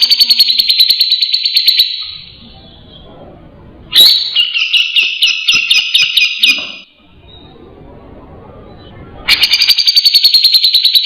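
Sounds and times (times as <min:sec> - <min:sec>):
bird chattering calls: 0:09.3 - 0:11.0.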